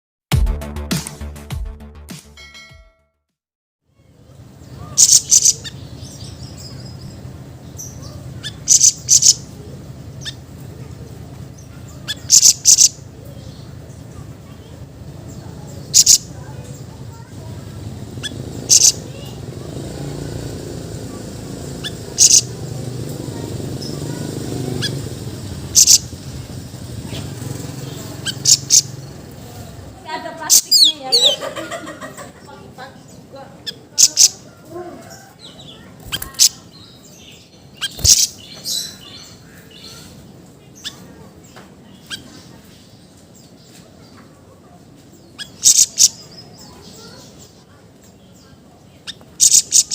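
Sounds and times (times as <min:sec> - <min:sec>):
songbird rasping calls: 0:04.6 - 0:10.9, 0:11.5 - 0:14.0, 0:15.2 - 0:29.8, 0:30.4 - 0:31.5, 0:33.0 - 0:41.2, 0:41.9 - 0:43.0, 0:45.2 - 0:47.6, 0:49.0 - 0:49.9.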